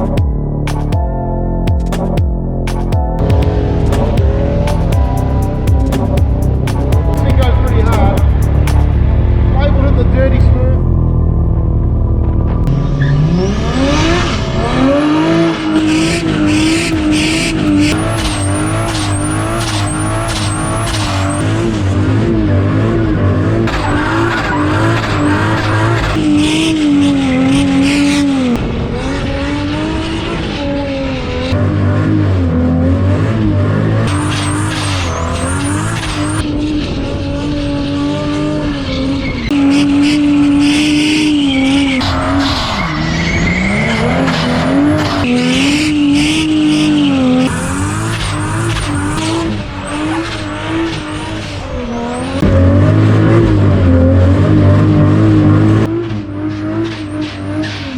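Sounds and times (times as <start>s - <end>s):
engine at high revs: 3.2s - 57.9s
tyres squealing and skidding: 12.7s - 31.5s, 34.0s - 57.9s.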